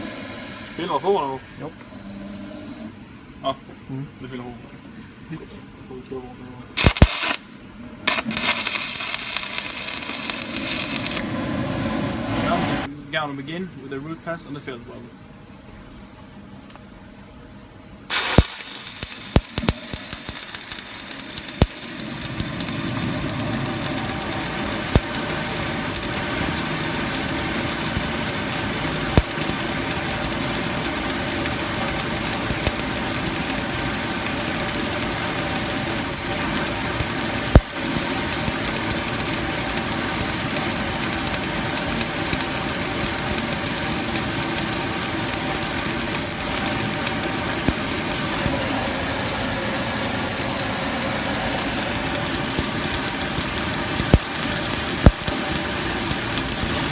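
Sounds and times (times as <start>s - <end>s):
welding arc cracks: 6.8s - 11.2s, 18.1s - 56.9s
welding arc crackling sizzle: 6.8s - 11.4s, 18.0s - 56.9s.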